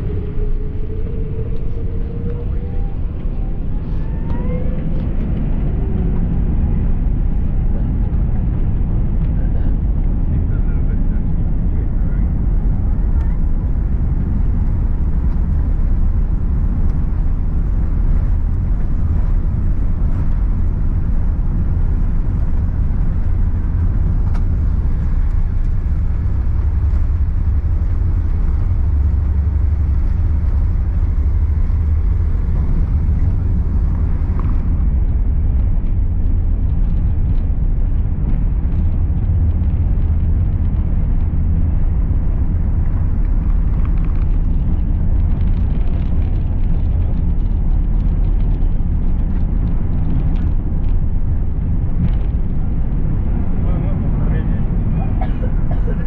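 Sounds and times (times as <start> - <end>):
airliner cabin rumble: 0.0 - 56.0.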